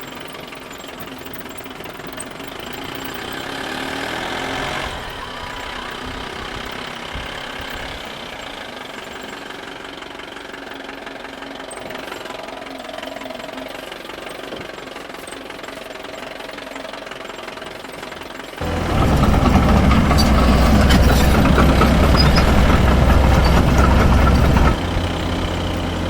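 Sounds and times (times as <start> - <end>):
model excavator engine idling: 0.0 - 26.0
regular knocking: 18.6 - 24.8.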